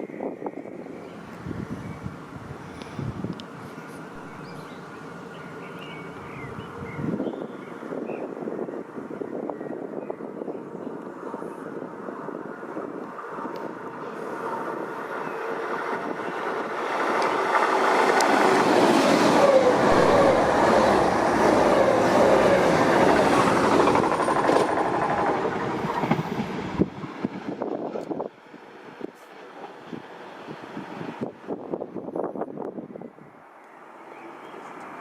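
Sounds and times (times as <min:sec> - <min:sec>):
train rolling past: 0:03.4 - 0:06.8, 0:11.2 - 0:32.1.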